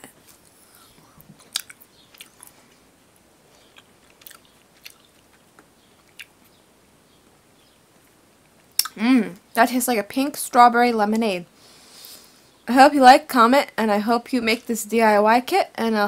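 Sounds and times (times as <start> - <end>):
person chewing candy: 0.2 - 2.7, 3.5 - 6.5, 8.6 - 9.0.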